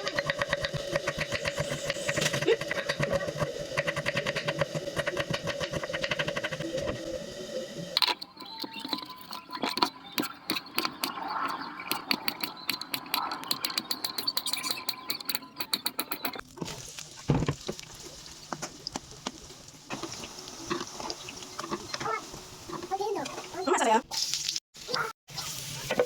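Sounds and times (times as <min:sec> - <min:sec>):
cooking clicks and taps: 0:08.0 - 0:23.6.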